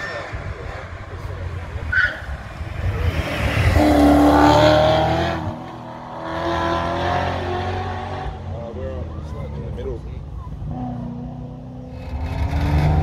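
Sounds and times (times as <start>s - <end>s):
car engine accelerating hard: 2.5s - 8.7s, 10.6s - 13.0s.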